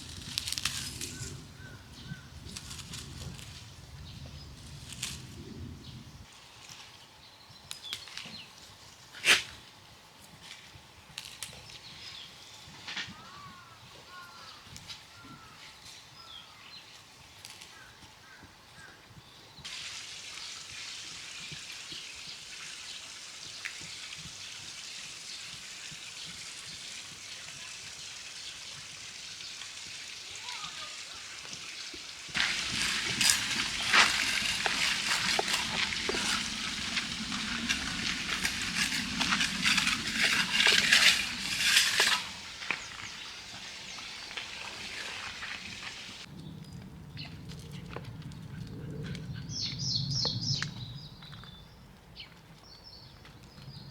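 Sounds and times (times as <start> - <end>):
fat crackling and popping: 0.0 - 5.9, 32.4 - 46.3
food sizzling in hot fat: 29.2 - 46.3.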